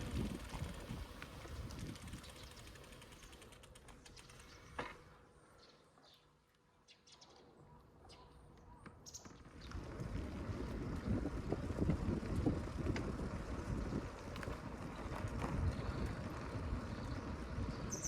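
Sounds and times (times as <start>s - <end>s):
wind rumbling on microphone: 0.0s - 2.7s, 9.6s - 18.0s.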